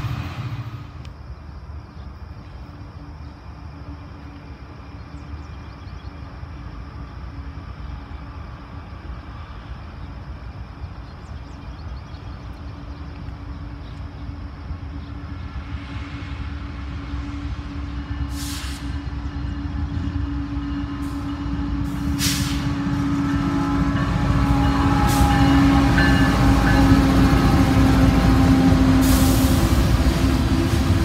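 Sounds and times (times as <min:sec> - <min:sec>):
diesel locomotive engine rumble: 0:00.0 - 0:31.0
sharp burst of hiss: 0:18.2 - 0:19.0, 0:21.9 - 0:22.8.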